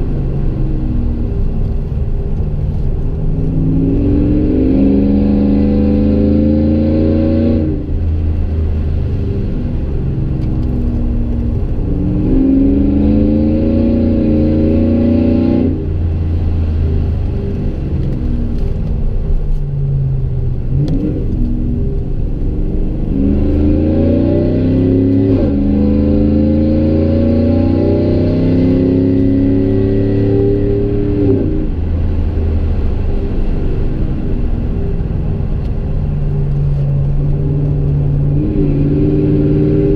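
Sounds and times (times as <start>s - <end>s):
truck engine revving: 3.3s - 8.0s, 10.6s - 18.7s, 20.6s - 31.8s.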